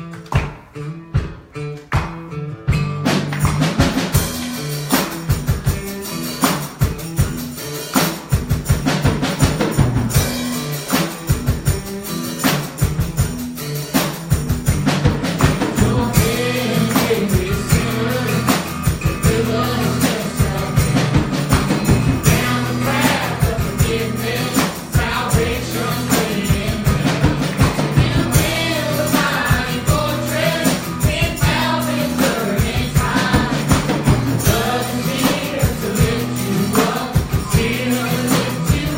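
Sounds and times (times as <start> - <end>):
gospel band music: 0.0 - 38.9
drum kit beat: 0.3 - 38.9
voices singing: 15.2 - 38.9.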